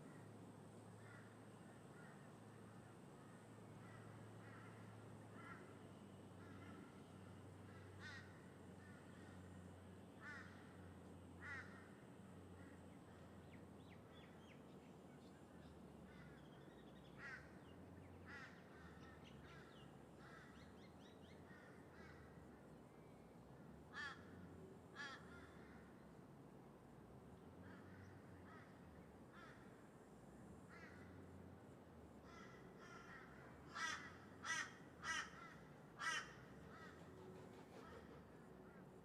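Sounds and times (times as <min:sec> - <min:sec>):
crows cawing: 0:07.7 - 0:09.4, 0:10.2 - 0:10.8, 0:11.4 - 0:12.0, 0:17.2 - 0:17.6, 0:18.2 - 0:20.7, 0:23.9 - 0:24.4, 0:25.0 - 0:25.9, 0:27.6 - 0:29.7, 0:32.2 - 0:37.0.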